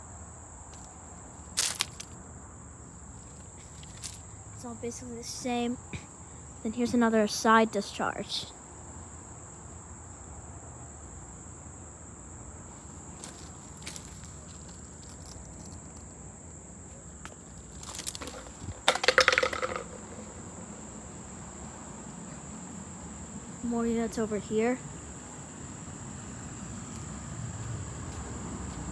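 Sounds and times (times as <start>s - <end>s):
insects trilling: 0.0s - 28.9s
crunching rattling clicks: 1.6s - 2.2s, 13.2s - 16.2s, 17.3s - 20.4s.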